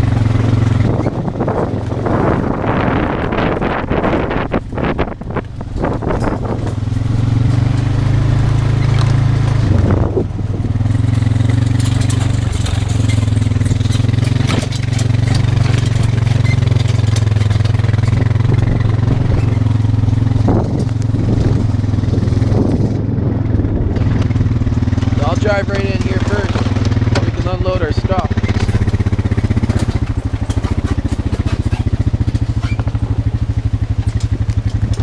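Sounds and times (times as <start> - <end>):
knocks and rattles: 0.0 - 35.0
vehicle engine running: 0.0 - 35.0.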